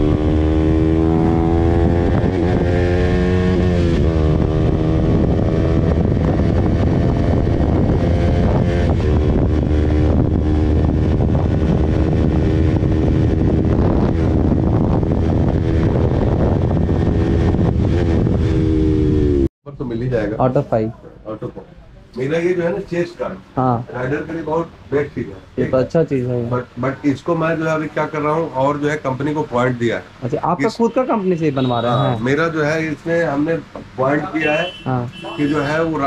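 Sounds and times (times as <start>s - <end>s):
motorcycle engine revving: 0.0s - 19.5s.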